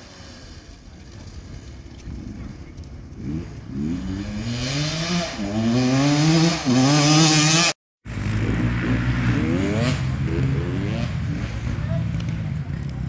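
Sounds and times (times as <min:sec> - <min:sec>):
motorcycle engine revving hard: 0:03.1 - 0:12.2.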